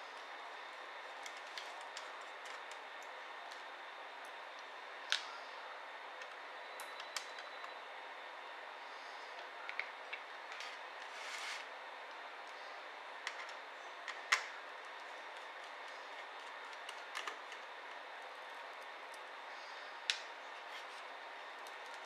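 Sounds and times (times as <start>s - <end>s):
laptop parts clicking: 1.2s - 3.6s, 15.3s - 18.0s.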